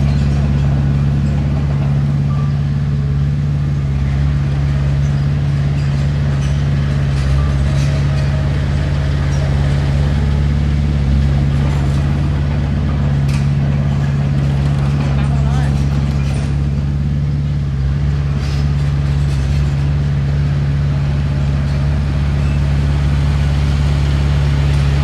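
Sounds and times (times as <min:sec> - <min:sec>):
heavy diesel engine droning: 0:00.0 - 0:25.0.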